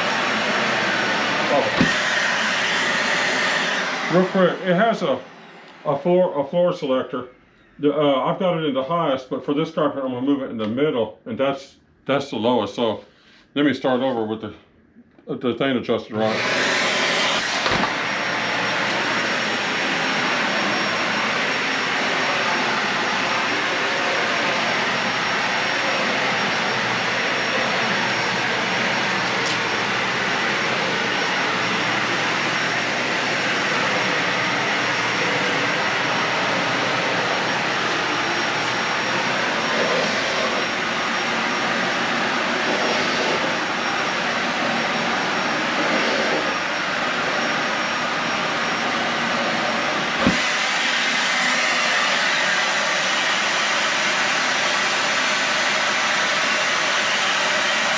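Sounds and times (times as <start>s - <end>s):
vacuum cleaner running: 0.0s - 6.2s, 16.1s - 57.9s.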